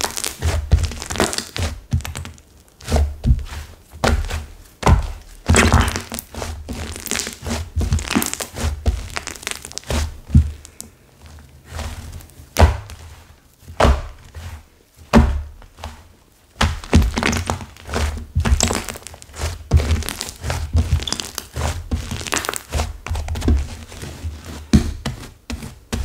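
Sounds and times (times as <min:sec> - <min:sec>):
slime crackling: 0:00.0 - 0:25.0.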